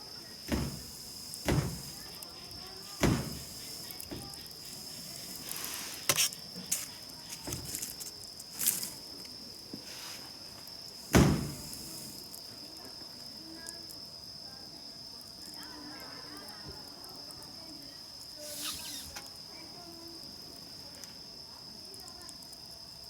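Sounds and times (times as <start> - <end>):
crickets chirring: 0.0 - 23.0
sharp knocks: 0.5 - 0.8.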